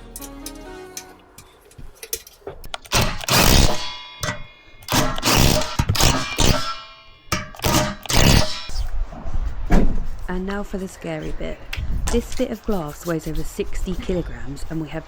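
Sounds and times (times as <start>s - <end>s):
metal parts clanking: 0.0s - 8.9s.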